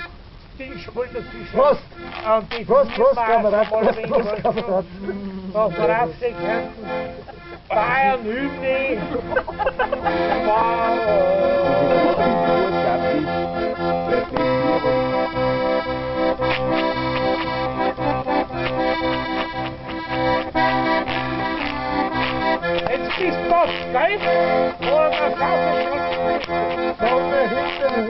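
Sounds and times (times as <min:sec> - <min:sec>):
accordion playing folk music: 0:00.0 - 0:28.0.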